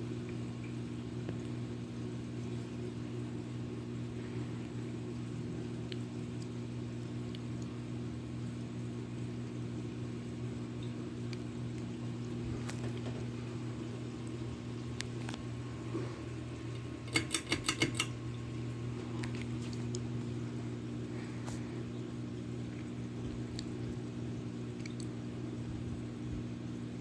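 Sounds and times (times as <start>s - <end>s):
ceiling fan humming: 0.0s - 27.0s
sharp clicks: 16.8s - 18.2s.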